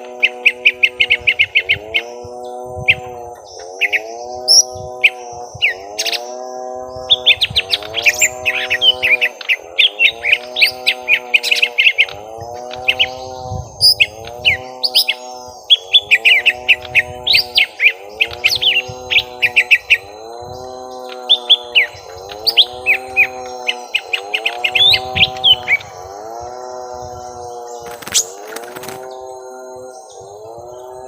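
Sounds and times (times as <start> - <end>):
birds chirping and trilling: 0.0 - 31.0
low arching tone: 0.0 - 31.0.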